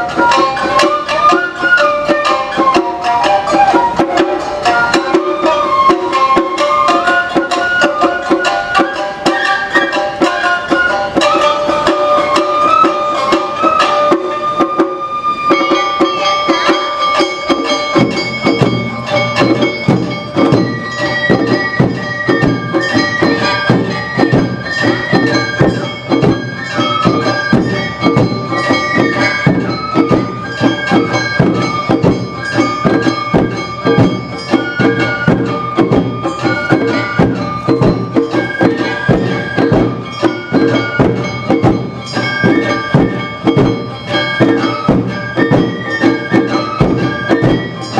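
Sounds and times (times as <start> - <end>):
clanging hand gong: 0.0 - 47.9
deep drums beating: 0.0 - 47.9
high bamboo flute melody: 0.0 - 47.9.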